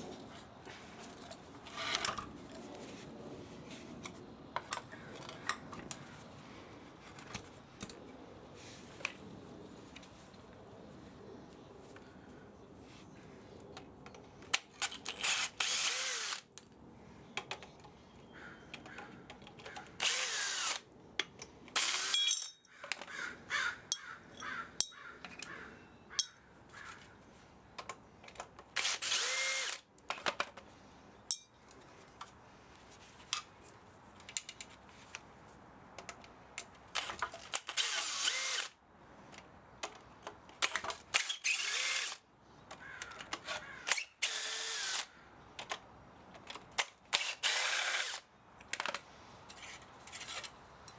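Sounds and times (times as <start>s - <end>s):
power drill motor whine: 14.8s - 16.4s, 20.0s - 20.8s, 21.8s - 22.2s, 28.8s - 29.8s, 37.0s - 38.7s, 41.2s - 42.2s, 43.9s - 45.1s, 47.2s - 48.2s.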